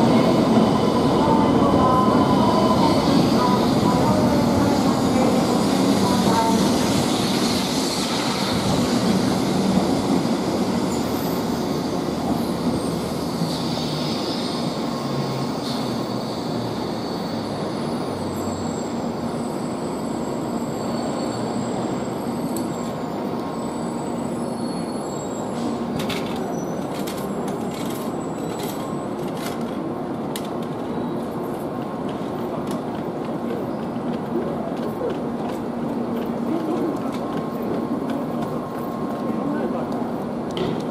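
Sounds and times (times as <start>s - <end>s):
train hum and rush: 0.0s - 40.9s
train brake squeal: 1.8s - 29.3s.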